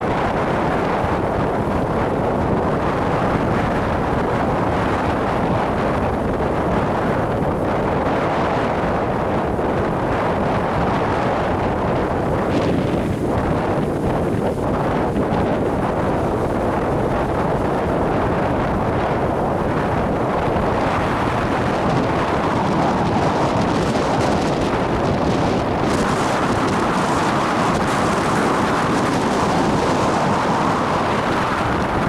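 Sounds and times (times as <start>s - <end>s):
wind buffeting microphone: 0.0s - 32.0s
waves breaking on shore: 8.6s - 32.0s.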